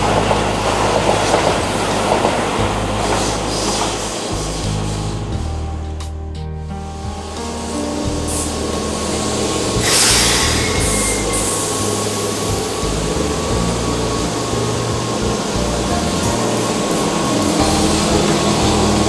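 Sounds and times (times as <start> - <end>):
electric train rumble: 0.0 - 6.0, 6.7 - 19.0
short hissing bursts: 9.8 - 11.9.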